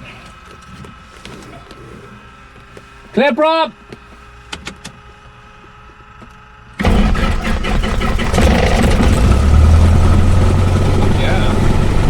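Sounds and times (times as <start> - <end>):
aircraft engine starting and idling: 6.2 - 12.0.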